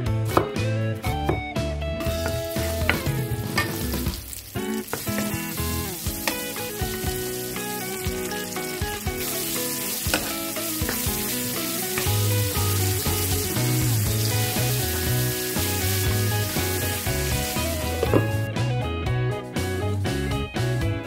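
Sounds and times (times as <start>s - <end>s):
background music: 0.0s - 21.0s
onion sizzling in hot oil: 2.1s - 18.5s.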